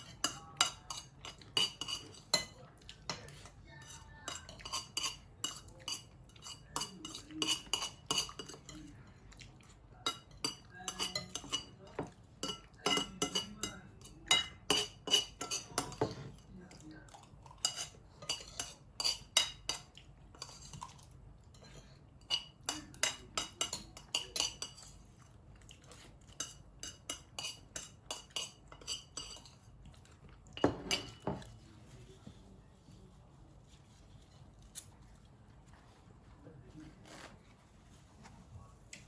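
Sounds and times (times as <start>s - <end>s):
cutlery clatter: 0.0s - 3.5s, 4.3s - 8.8s, 10.1s - 16.4s, 17.5s - 25.0s, 30.6s - 31.6s
cutlery clinking on plates: 0.0s - 8.9s, 10.0s - 16.5s, 17.5s - 25.0s, 25.8s - 29.7s, 30.5s - 31.7s.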